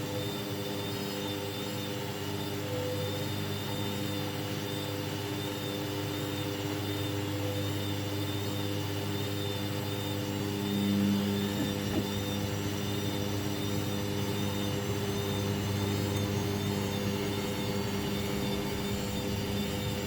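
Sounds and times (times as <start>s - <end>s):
washing machine motor hum: 0.0s - 20.0s.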